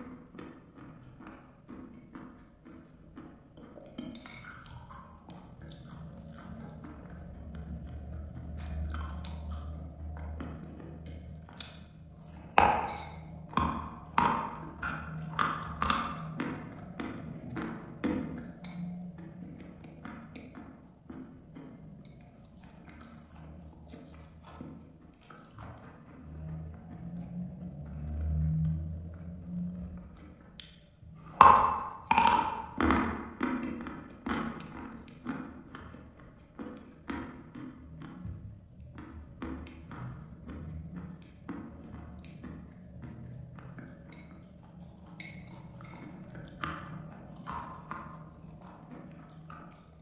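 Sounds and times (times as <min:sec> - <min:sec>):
chalk being chewed crunching: 0:03.8 - 0:18.8, 0:42.8 - 0:50.0.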